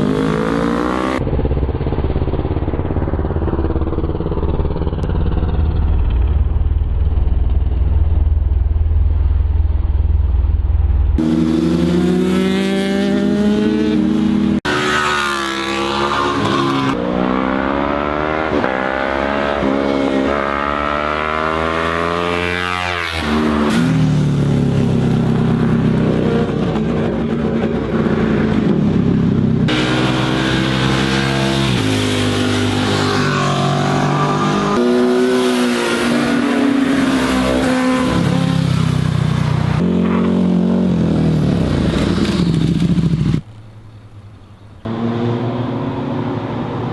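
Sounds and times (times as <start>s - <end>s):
sport motorcycle engines revving: 0.0s - 2.2s, 11.2s - 43.5s, 44.6s - 46.9s
muffled engine rumble: 1.3s - 11.2s.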